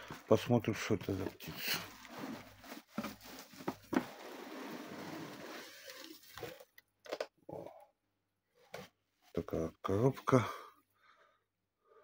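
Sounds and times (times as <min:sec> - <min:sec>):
cardboard packaging rustling: 0:00.0 - 0:06.8.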